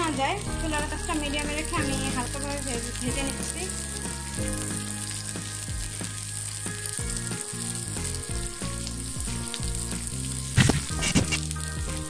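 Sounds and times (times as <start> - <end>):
vegetables sizzling in oil: 0.0 - 12.0
spatula scraping a pan: 10.6 - 11.5.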